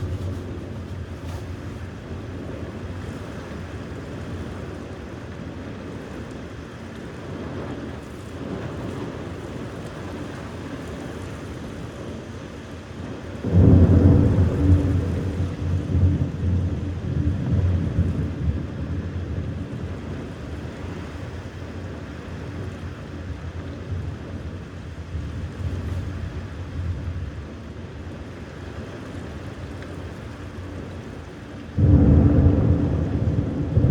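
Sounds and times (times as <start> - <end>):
thunder clap and rumble: 0.0 - 5.2, 13.0 - 27.6, 31.7 - 33.9.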